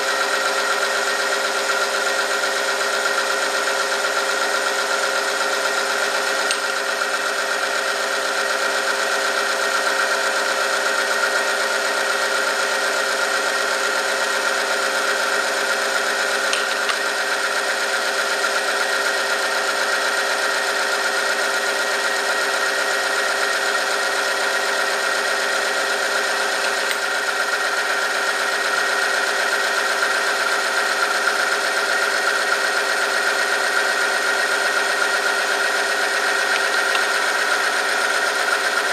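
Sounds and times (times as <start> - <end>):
test machine whining: 34.7 - 38.6.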